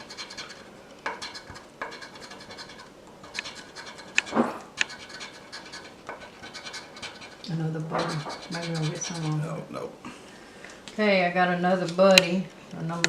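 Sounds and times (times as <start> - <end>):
lottery ticket being scratched: 0.0 - 9.6.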